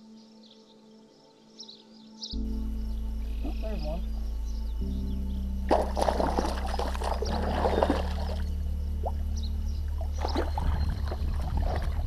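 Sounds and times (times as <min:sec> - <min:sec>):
background music: 0:00.0 - 0:12.0
fish splashing in water: 0:05.7 - 0:09.2, 0:10.1 - 0:12.0.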